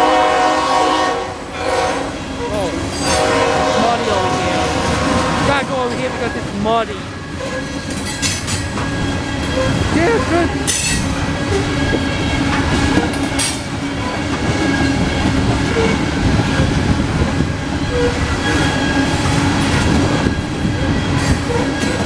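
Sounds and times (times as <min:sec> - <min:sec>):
steel wheels rumbling on rails: 0:00.0 - 0:22.0
wheels clattering over rail joints: 0:07.2 - 0:22.0.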